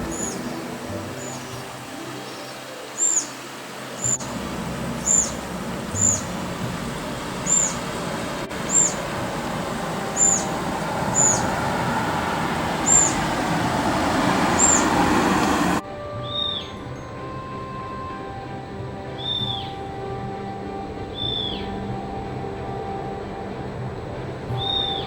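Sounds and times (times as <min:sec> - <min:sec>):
steady background rush: 0:00.0 - 0:16.2, 0:16.9 - 0:25.0
bird calling high notes: 0:00.0 - 0:18.4, 0:19.1 - 0:23.5, 0:24.5 - 0:25.0.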